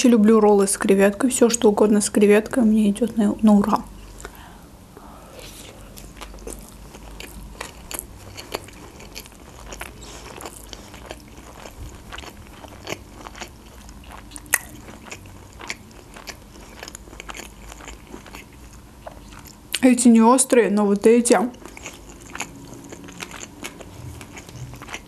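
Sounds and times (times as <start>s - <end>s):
person chewing food: 5.4s - 19.7s, 21.5s - 25.0s.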